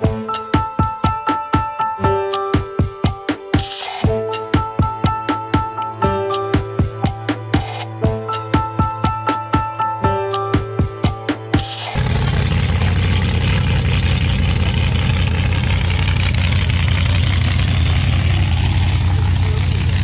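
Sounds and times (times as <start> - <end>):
background music: 0.0 - 12.0
vehicle engine idling: 12.0 - 20.0.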